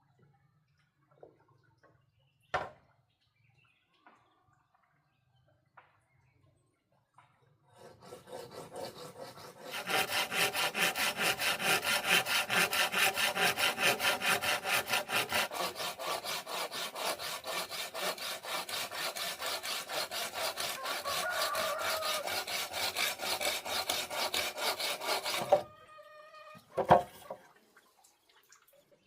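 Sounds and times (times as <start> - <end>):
hand saw cutting: 7.7 - 25.7.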